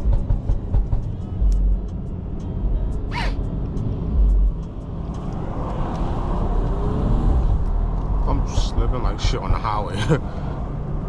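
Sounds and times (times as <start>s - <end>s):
car rumble in traffic: 0.0s - 11.0s
high squeak falling in pitch: 3.1s - 3.4s.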